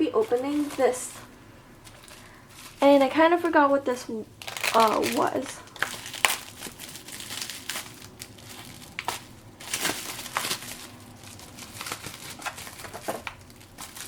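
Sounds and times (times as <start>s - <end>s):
packaging crinkling and rustling: 0.1s - 14.0s.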